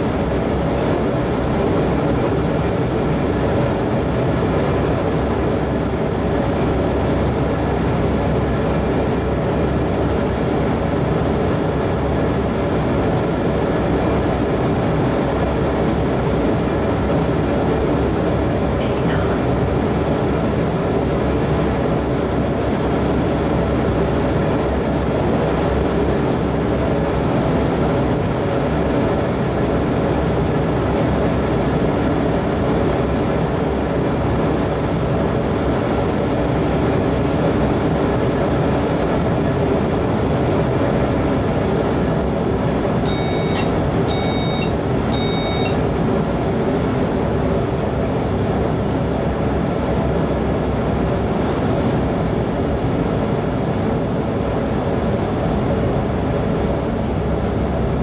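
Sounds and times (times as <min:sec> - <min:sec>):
motor hum: 0:43.0 - 0:45.9
short high electronic beeps: 0:43.1 - 0:45.8.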